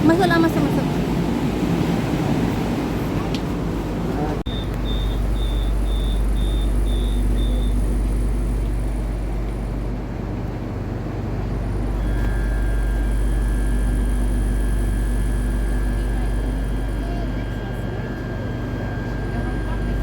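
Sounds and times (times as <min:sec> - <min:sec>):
low rumble of train carriage: 0:00.0 - 0:20.0
steady high whine: 0:03.1 - 0:20.0
high door-warning beeps: 0:04.5 - 0:09.4, 0:12.0 - 0:20.0.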